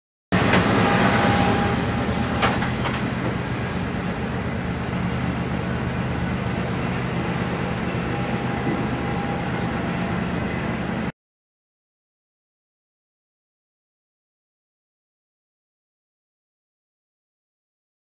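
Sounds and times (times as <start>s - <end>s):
freight train rolling past: 0.3s - 11.1s.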